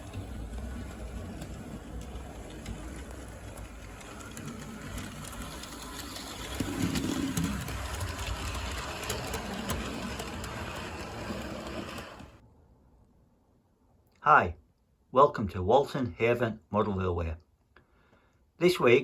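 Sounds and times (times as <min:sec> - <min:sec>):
light clicking of model train: 0:00.0 - 0:12.4.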